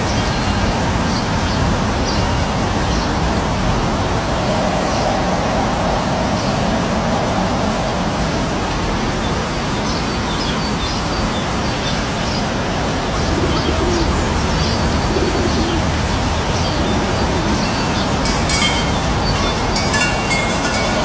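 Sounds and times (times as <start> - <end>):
low cooing calls: 13.2 - 20.8
birds chirping: 13.5 - 21.0.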